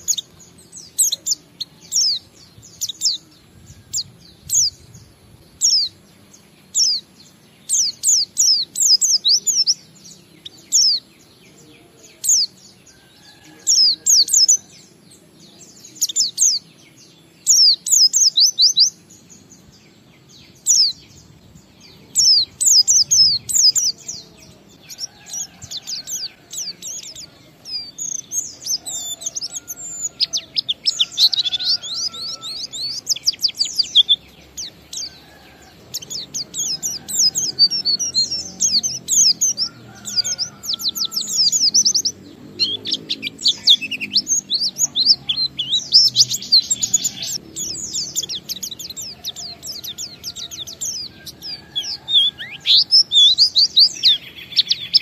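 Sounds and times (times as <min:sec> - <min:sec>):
bird twittering song: 0:00.0 - 0:55.0.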